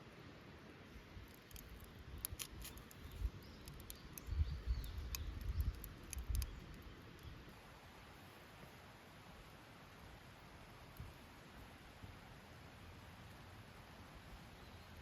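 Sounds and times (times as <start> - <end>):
wood fire crackling: 1.3 - 4.3, 4.9 - 7.4.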